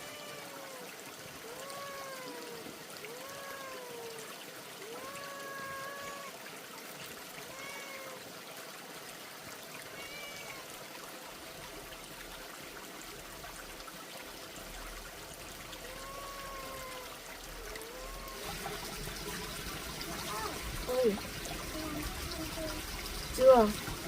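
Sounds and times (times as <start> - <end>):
oil sizzling in a pan: 18.2 - 24.0.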